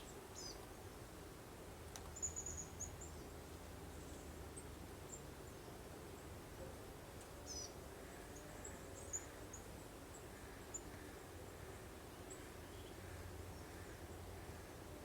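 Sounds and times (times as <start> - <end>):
soft wind: 0.0 - 15.0.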